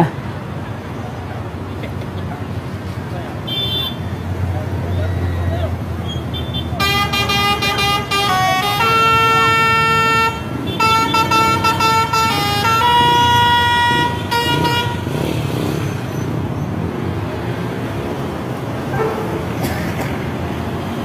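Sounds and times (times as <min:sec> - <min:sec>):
lorry air horns blasting: 0:06.6 - 0:15.5.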